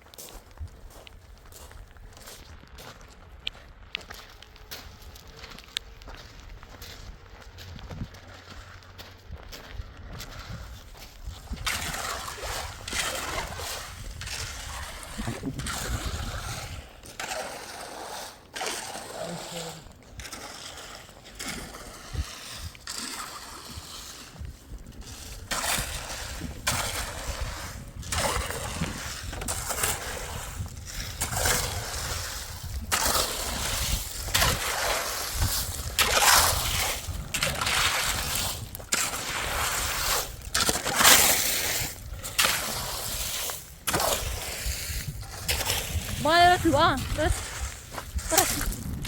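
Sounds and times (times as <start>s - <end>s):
water splashing and sloshing: 10.2s - 49.0s.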